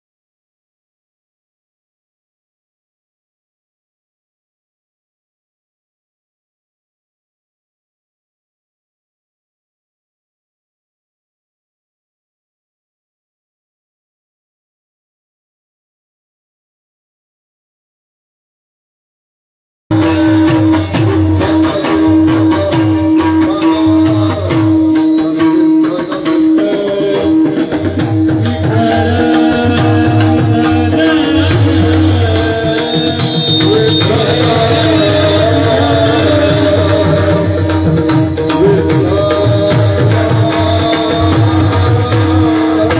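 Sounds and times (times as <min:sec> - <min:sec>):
held drone note: 0:19.9 - 0:42.9
quick percussion strokes: 0:19.9 - 0:42.9
tabla drumming: 0:19.9 - 0:42.9.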